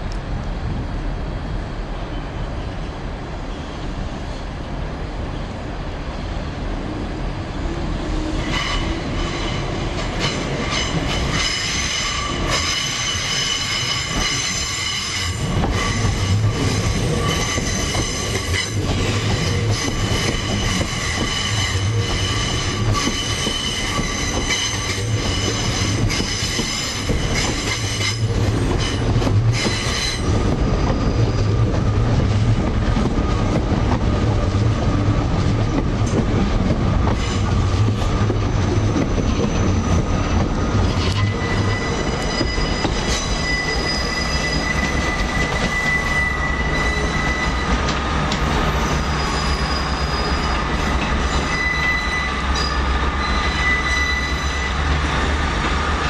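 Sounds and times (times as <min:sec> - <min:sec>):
low train hum: 0:00.0 - 0:56.0
train wheels squealing: 0:08.3 - 0:32.0, 0:37.0 - 0:47.9, 0:48.6 - 0:55.0.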